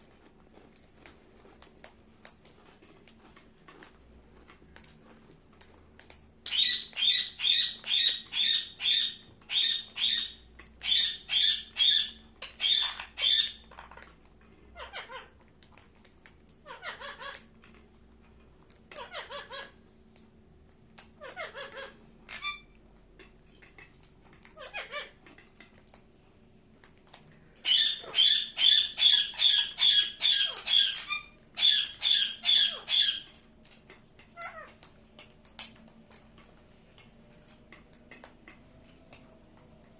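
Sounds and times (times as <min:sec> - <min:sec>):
parakeet squawking shrieks: 0:06.5 - 0:13.6, 0:21.2 - 0:22.7, 0:27.6 - 0:33.3.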